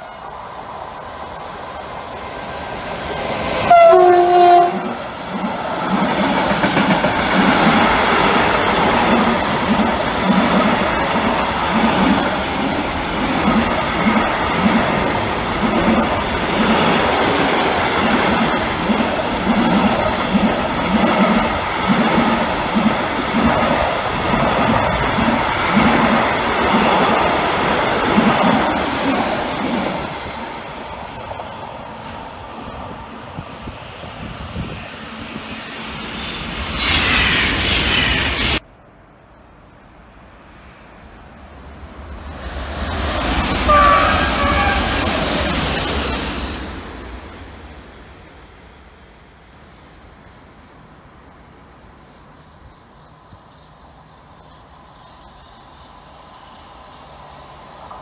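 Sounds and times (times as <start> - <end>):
train wheels clattering on rails: 2.1 - 33.5
train horn blast: 3.6 - 5.0, 43.6 - 45.2.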